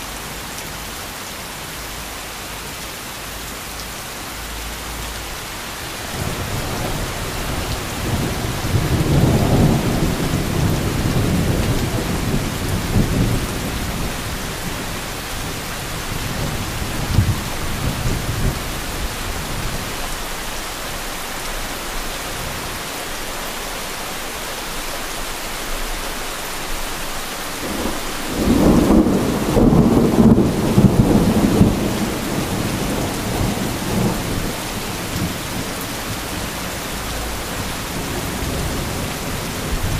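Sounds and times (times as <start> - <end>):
heavy rain falling: 0.0 - 39.9
rolling thunder: 6.0 - 19.8, 27.6 - 39.9.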